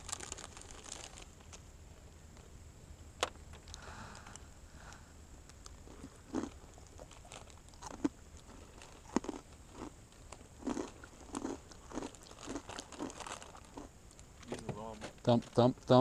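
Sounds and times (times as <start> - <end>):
person chewing crunchy snacks: 0.0 - 1.3, 5.5 - 14.2.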